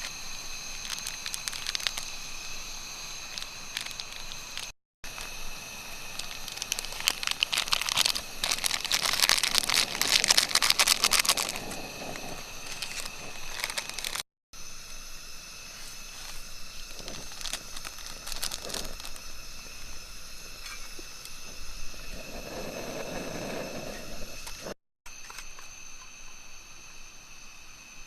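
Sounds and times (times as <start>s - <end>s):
dense crinkling crackling: 0.0s - 14.3s, 15.8s - 25.4s.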